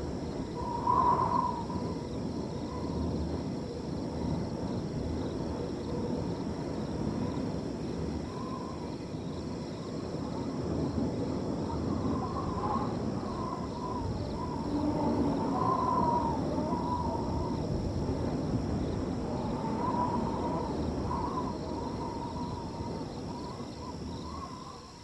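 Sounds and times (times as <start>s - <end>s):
crickets trilling: 0.0s - 25.0s
wind blowing through field: 0.0s - 25.0s.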